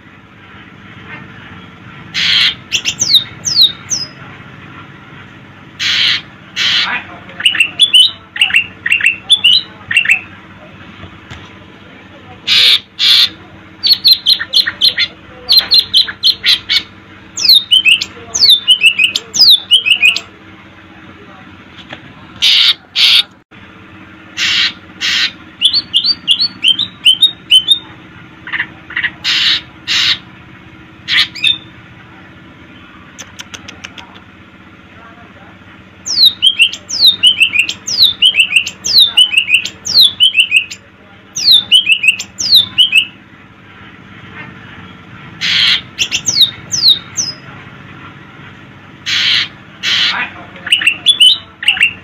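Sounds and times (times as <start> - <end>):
bird singing harsh notes: 2.1 - 4.2, 5.8 - 10.3, 12.4 - 20.3, 24.4 - 27.9, 31.1 - 31.8, 36.0 - 43.2, 45.4 - 47.5, 49.0 - 52.0.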